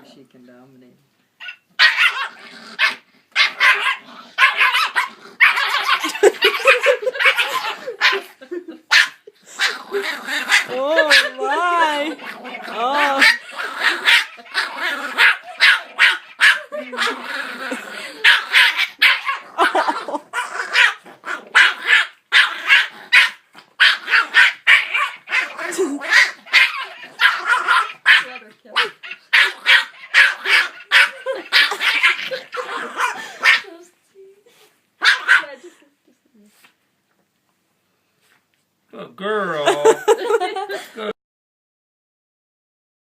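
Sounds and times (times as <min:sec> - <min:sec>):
puppy barking: 0:01.4 - 0:08.3, 0:08.9 - 0:17.2, 0:18.1 - 0:33.7, 0:35.0 - 0:35.6.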